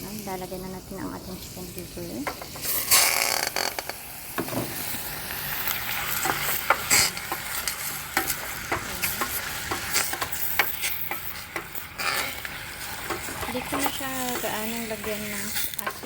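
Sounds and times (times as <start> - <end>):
liver sizzling in hot oil: 0.0 - 16.0
utensil tapping against pan: 8.2 - 11.8.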